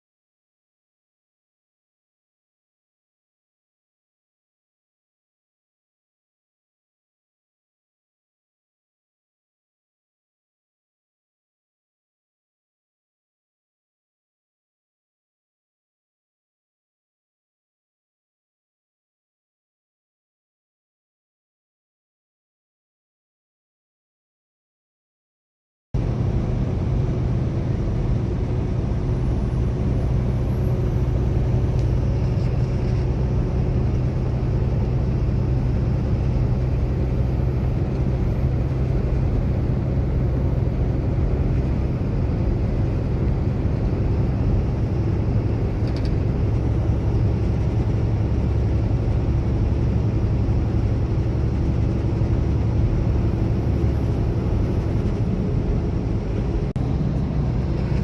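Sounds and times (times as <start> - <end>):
road noise: 26.0 - 58.0
truck engine rumble: 26.0 - 58.0.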